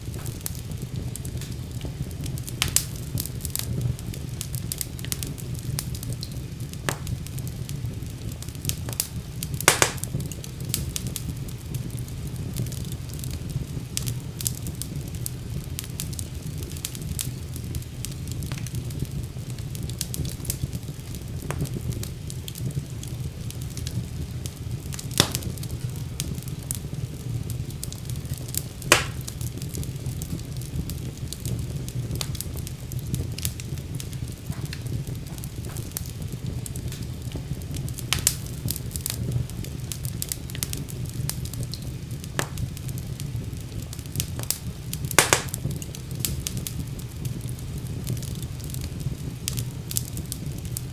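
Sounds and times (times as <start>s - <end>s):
fire crackling and popping: 0.0s - 50.9s.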